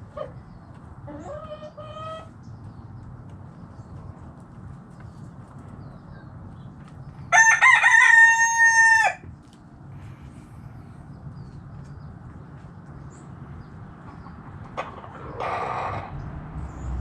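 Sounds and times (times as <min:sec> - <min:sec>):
rooster crowing: 0:07.3 - 0:09.2.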